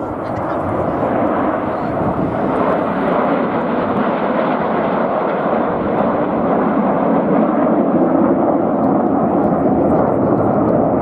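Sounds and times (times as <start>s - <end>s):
jets flying past: 0.0s - 4.6s.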